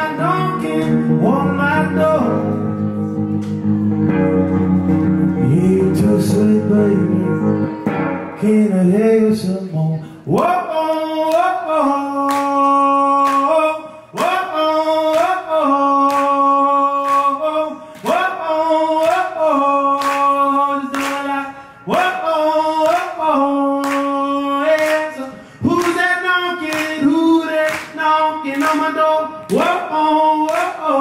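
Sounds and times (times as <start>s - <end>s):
man singing wordless phrases: 0.0s - 2.7s, 5.3s - 31.0s
strummed acoustic guitar: 0.0s - 9.6s.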